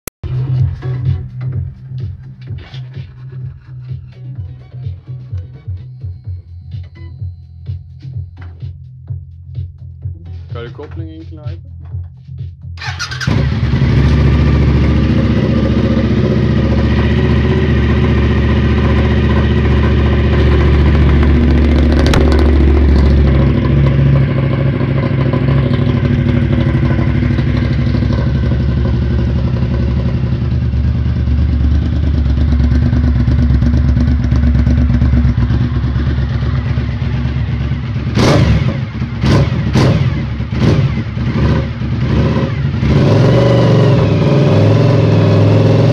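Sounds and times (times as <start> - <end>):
motorcycle engine starting and idling: 12.8 - 45.9.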